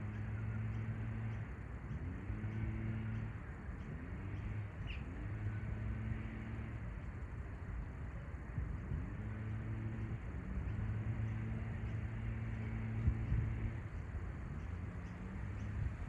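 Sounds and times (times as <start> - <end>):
bird chirp: 0.0 - 6.3
low mechanical hum with tones: 0.0 - 16.0.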